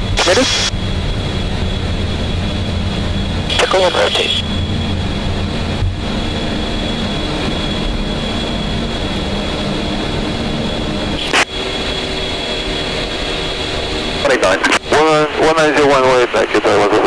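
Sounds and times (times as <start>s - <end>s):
thin high whine: 0.0s - 0.9s, 2.2s - 13.0s
engine and airflow rush: 0.0s - 17.0s.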